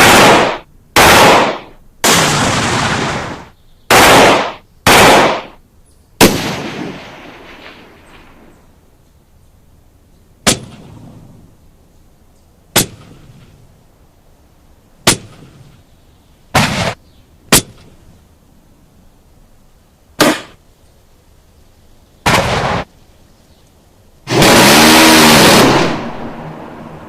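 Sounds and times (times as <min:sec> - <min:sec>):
bursts of gunfire: 0:00.0 - 0:05.6, 0:06.2 - 0:08.4, 0:16.6 - 0:17.9, 0:22.3 - 0:22.9, 0:24.3 - 0:27.0
gunshots: 0:00.0 - 0:05.6, 0:06.2 - 0:08.5, 0:10.4 - 0:11.2, 0:12.7 - 0:13.6, 0:15.0 - 0:15.7, 0:16.5 - 0:17.9, 0:20.2 - 0:20.6, 0:22.2 - 0:22.9, 0:24.3 - 0:27.0.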